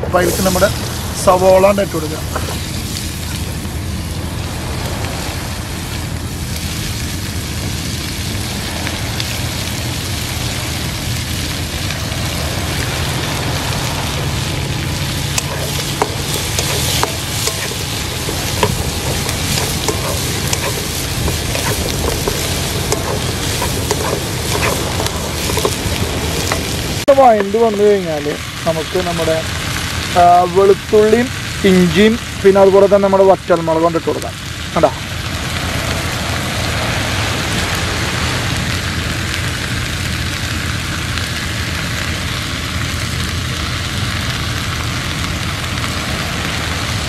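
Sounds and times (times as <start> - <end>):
onions sizzling in a pan: 0.1 - 47.0
utensil scraping a pan: 15.0 - 26.9.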